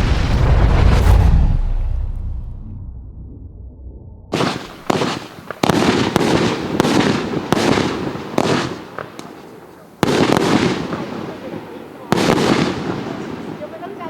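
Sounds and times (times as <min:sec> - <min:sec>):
low rumble: 0:00.0 - 0:04.4
fireworks shots firing: 0:04.3 - 0:13.7.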